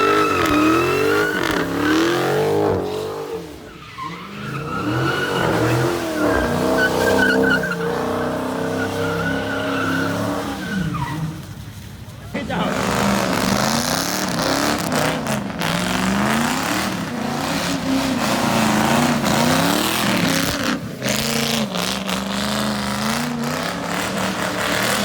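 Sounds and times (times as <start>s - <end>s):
car engine revving hard: 0.0s - 3.6s, 12.4s - 25.0s
tyres spinning and squealing: 0.0s - 25.0s.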